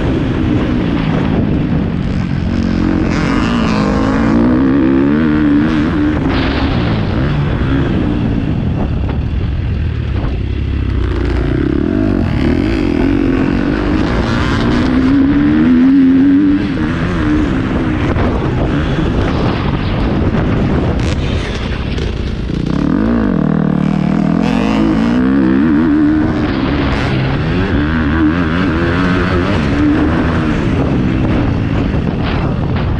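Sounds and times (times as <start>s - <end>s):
dirt bike engine revving: 0.0s - 32.9s
wind noise: 0.0s - 32.9s.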